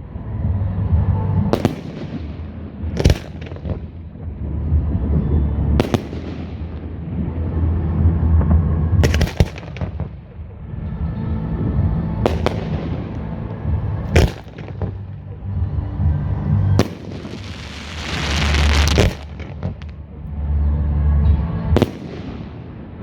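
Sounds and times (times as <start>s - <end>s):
low rumble: 0.0s - 23.0s
fireworks bursting: 0.9s - 10.4s, 16.0s - 20.0s
crackling hiss: 17.2s - 19.5s.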